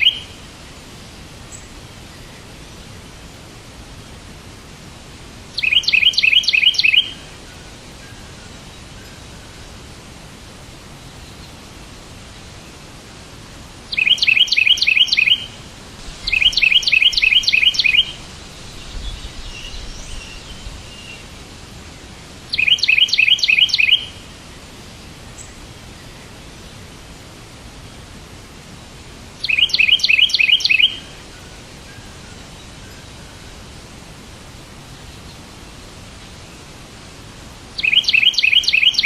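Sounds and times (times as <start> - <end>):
faint bird chirps: 0.0 - 0.5, 5.6 - 9.8, 13.9 - 15.6, 16.2 - 21.4, 22.3 - 24.3, 29.4 - 33.7, 37.8 - 39.0
songbird high chirps: 0.0 - 3.0, 5.5 - 9.8, 13.9 - 26.9, 29.4 - 33.7, 37.7 - 39.0
steady low hiss: 0.0 - 39.0.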